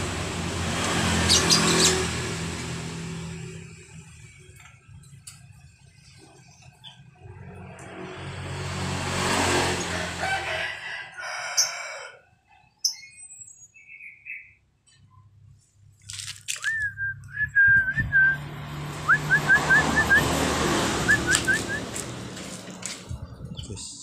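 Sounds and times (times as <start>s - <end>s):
starling whistling and chirping: 1.3s - 2.0s, 12.8s - 14.6s, 21.0s - 22.0s.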